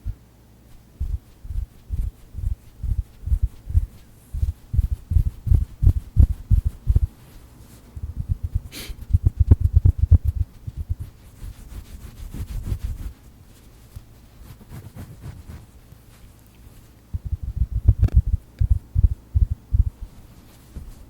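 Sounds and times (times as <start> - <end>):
brief hiss: 8.7 - 9.1.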